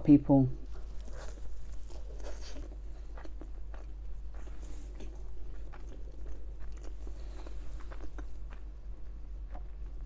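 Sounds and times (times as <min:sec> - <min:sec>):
soft chewing with mouth clicks: 0:00.6 - 0:10.0.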